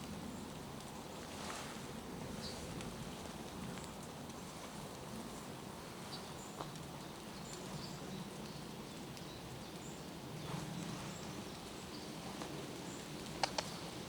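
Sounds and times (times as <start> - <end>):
rain falling through forest: 0.0 - 14.0
small birds chirping: 5.4 - 14.0.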